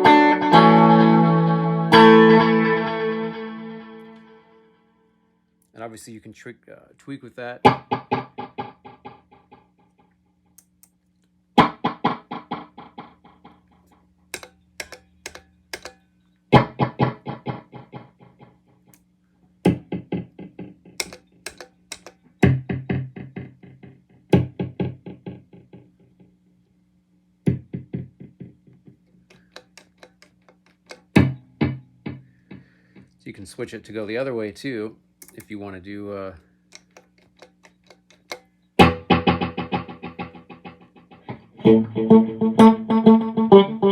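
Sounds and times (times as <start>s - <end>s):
electric guitar chords with echo: 0.0s - 4.4s, 7.7s - 9.4s, 11.6s - 13.6s, 16.6s - 18.6s, 19.7s - 25.9s, 27.5s - 28.7s, 38.8s - 43.9s.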